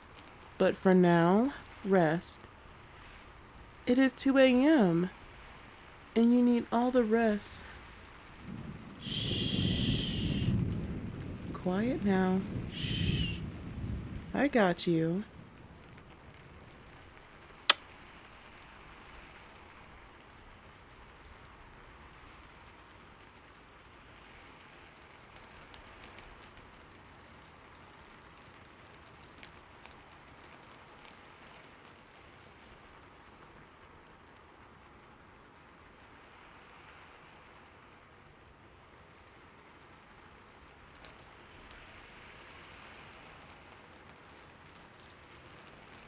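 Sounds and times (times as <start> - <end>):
rain falling: 0.0 - 46.0.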